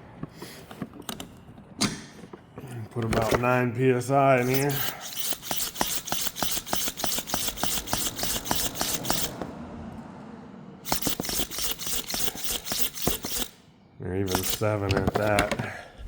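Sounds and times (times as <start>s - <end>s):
hand pump clicking: 4.4s - 9.5s, 10.9s - 13.6s, 14.3s - 15.6s.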